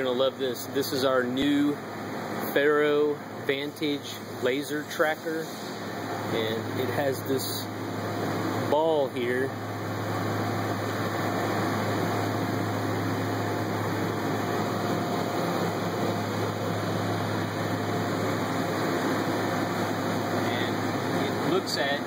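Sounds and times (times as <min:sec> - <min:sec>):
machine shop hum: 0:00.0 - 0:22.0.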